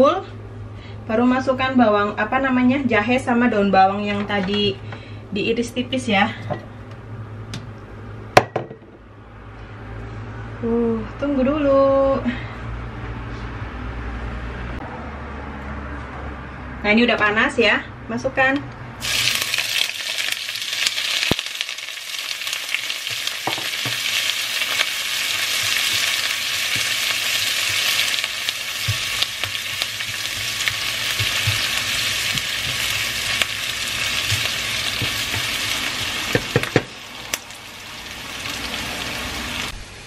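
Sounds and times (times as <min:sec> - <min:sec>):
vegetables sizzling in hot oil: 0:19.0 - 0:40.0.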